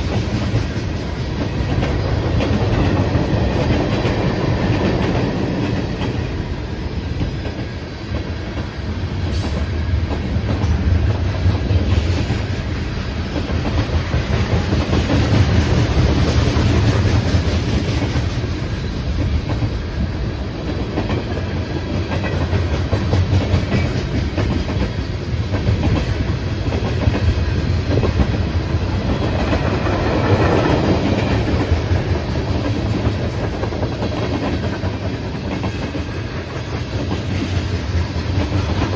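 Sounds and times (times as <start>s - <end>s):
train rumbling past: 0.0s - 38.9s.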